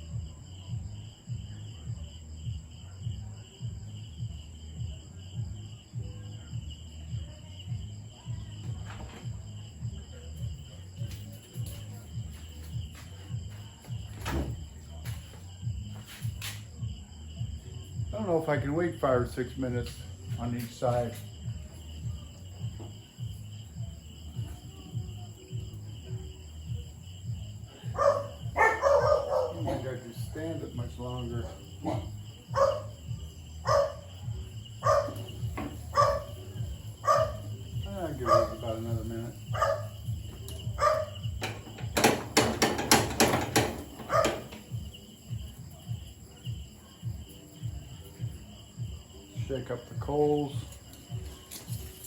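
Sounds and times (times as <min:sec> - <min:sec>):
crickets chirping: 0:00.0 - 0:52.0
knocks at a charcoal grill: 0:07.1 - 0:16.8, 0:20.2 - 0:52.0
dog barking: 0:27.8 - 0:30.0, 0:31.4 - 0:41.4, 0:44.0 - 0:44.8.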